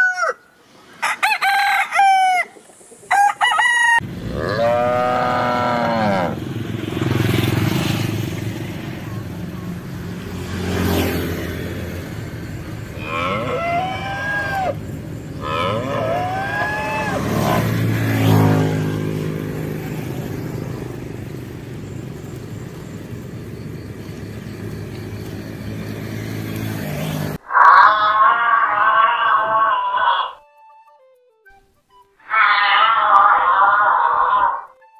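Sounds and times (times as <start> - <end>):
cattle mooing: 4.2 - 6.4, 12.9 - 14.8, 15.4 - 18.7, 27.4 - 30.4, 32.2 - 34.7.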